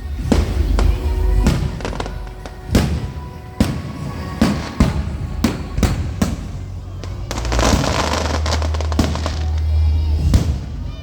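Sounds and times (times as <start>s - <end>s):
fireworks bangs: 0.0s - 11.0s
low rumble: 0.0s - 11.0s
music playing: 0.0s - 11.0s.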